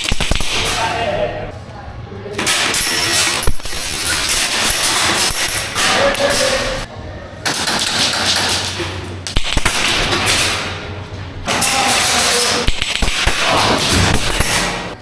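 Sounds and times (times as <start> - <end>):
airsoft gun full-auto bursts: 0.0 - 0.9.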